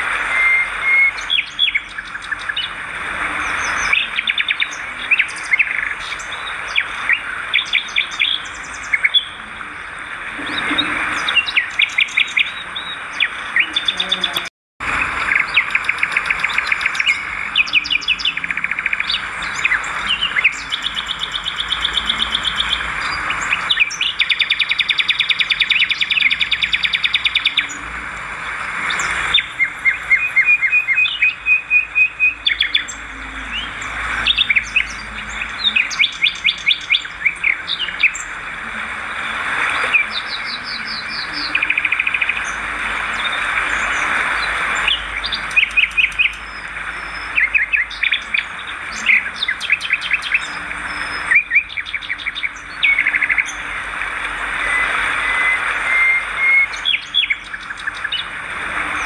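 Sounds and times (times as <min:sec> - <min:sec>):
steady hiss: 0:19.2 - 0:31.7, 0:52.6 - 0:59.0.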